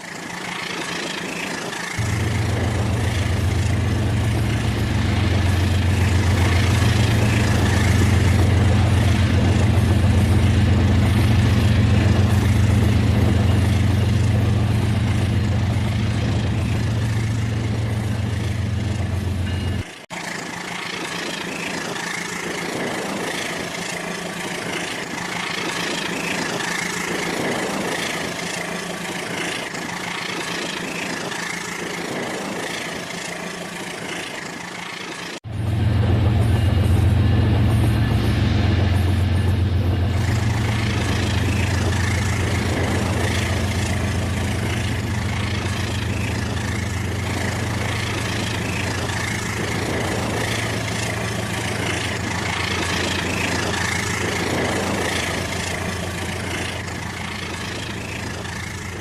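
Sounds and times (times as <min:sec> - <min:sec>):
strong low drone: 0:02.0 - 0:19.8, 0:35.4 - 0:59.0
toy train motor hum: 0:40.2 - 0:59.0.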